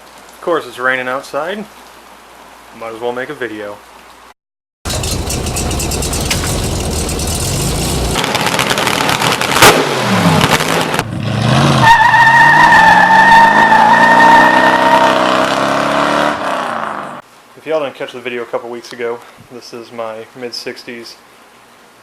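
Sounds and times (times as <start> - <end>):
sharp bang: 4.9 - 11.1
car engine revving: 4.9 - 17.2.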